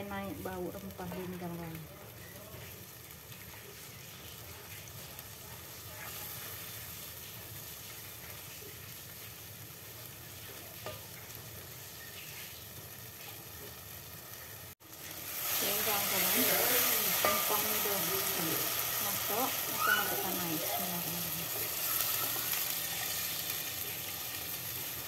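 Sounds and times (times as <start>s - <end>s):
spice paste sizzling in hot oil: 0.0s - 25.0s
spatula scraping a pot: 16.1s - 20.6s.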